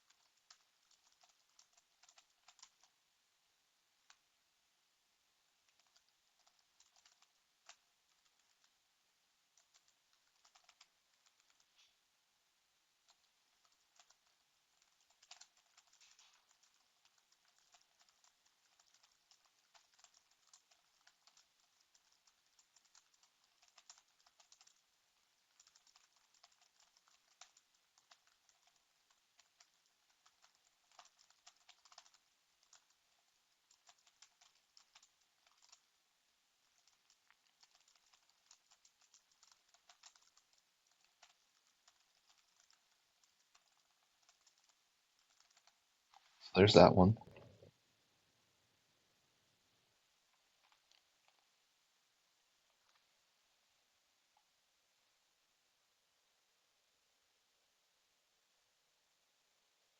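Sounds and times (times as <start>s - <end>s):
computer keyboard typing: 0.0s - 3.0s, 5.7s - 8.8s, 9.5s - 11.8s, 13.0s - 46.3s, 50.4s - 51.5s, 52.7s - 53.1s.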